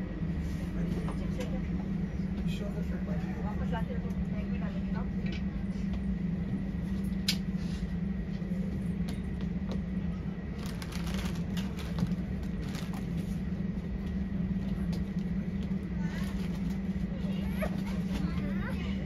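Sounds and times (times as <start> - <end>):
train coach rumble and hum: 0.0 - 19.0.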